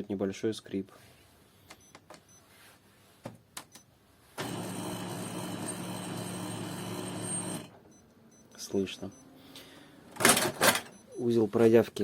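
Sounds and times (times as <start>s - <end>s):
printer mechanism humming: 4.4s - 7.8s.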